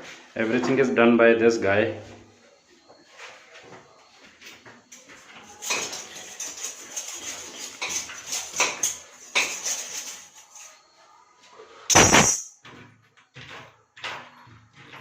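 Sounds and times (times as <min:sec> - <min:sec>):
tools and fittings clinking: 0:05.0 - 0:10.7.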